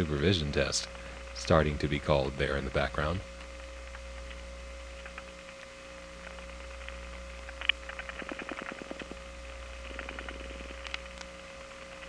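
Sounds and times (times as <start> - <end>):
low hum: 0.0 - 12.0
rapid dial pulse clicking: 3.4 - 11.3
steady telephone tone: 8.1 - 11.2.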